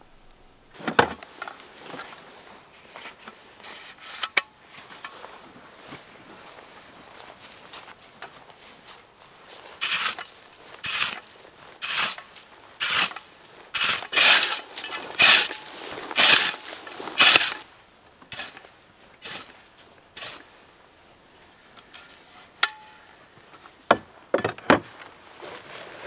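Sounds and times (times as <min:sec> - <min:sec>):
footsteps crunching: 0:04.6 - 0:17.7.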